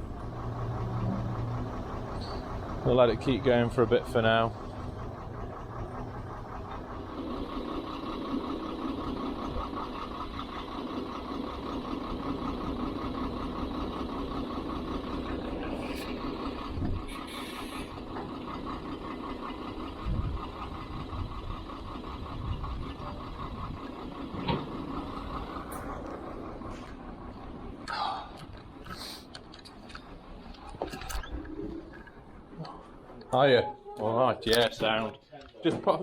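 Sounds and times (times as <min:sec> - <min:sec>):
diesel truck engine running: 0:00.0 - 0:36.0
short air hisses: 0:17.1 - 0:17.9.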